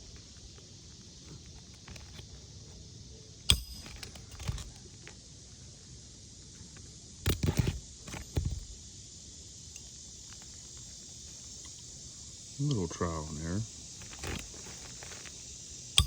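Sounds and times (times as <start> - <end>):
hammer striking metal tool: 3.5 - 4.6.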